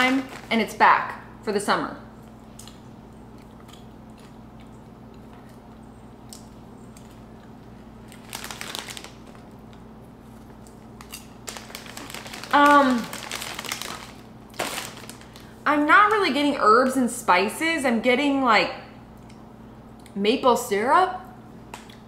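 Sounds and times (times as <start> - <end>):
popcorn crunching: 0.0 - 0.7, 2.3 - 15.5
plastic snack bag crinkling: 0.0 - 0.8, 8.0 - 15.6.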